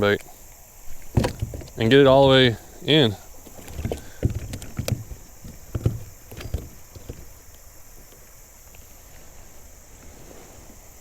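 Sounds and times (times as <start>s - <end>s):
knocks and taps of gear: 0.9s - 2.6s, 3.4s - 8.9s.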